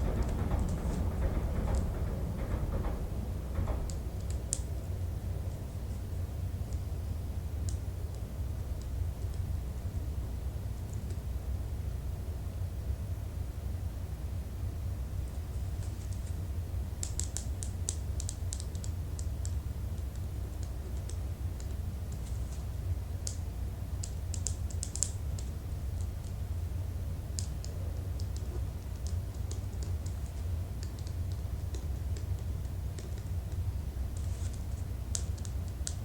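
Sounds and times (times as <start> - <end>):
low steady hum: 0.0 - 36.0
computer keyboard typing: 24.0 - 26.4.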